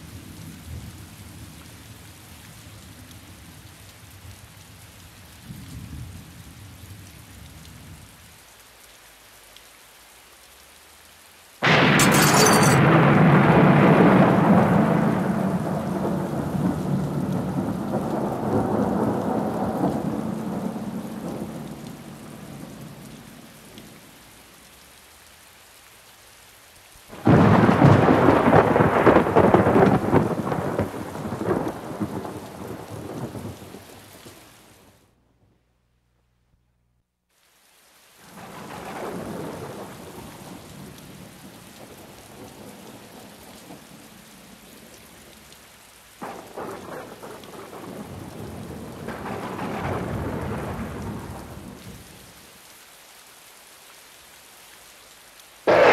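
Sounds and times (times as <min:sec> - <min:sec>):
rain hissing: 0:08.3 - 0:35.0, 0:55.4 - 0:55.9
thunder claps rumbling: 0:11.6 - 0:23.1, 0:27.1 - 0:33.8, 0:46.2 - 0:52.0, 0:55.7 - 0:55.9.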